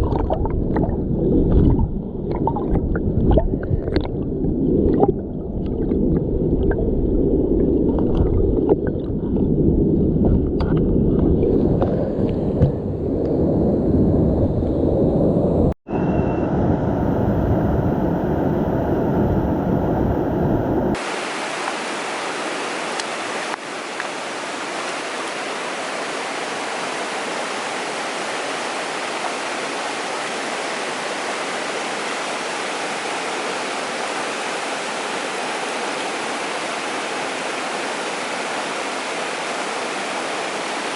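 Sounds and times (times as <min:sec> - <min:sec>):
muffled low rumbling: 0:00.0 - 0:21.0
stream water rushing: 0:17.0 - 0:40.9.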